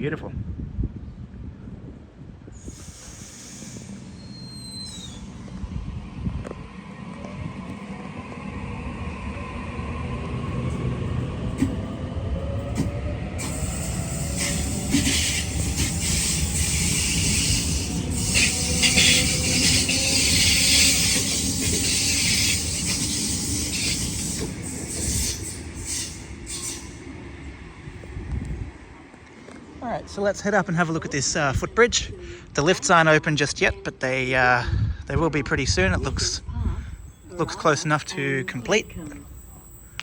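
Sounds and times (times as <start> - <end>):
train rumble: 0.4 - 32.9, 34.8 - 40.0
loud hiss: 2.6 - 5.4, 13.4 - 27.0
train motor whine: 2.6 - 27.1, 36.8 - 40.0.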